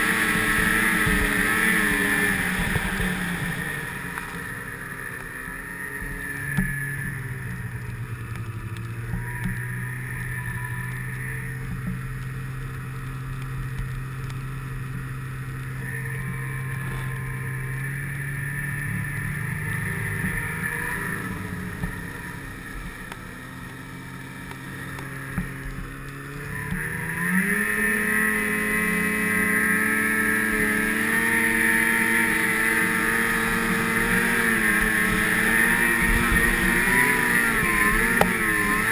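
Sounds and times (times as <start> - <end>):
snowmobile engine revving: 0.0 - 38.9.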